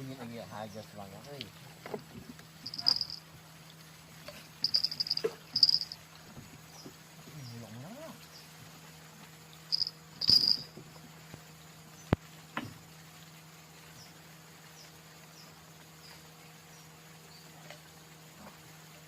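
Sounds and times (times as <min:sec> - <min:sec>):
crickets chirping: 0:00.0 - 0:03.4, 0:04.3 - 0:08.6, 0:09.6 - 0:12.1
steady low hum: 0:00.0 - 0:19.0.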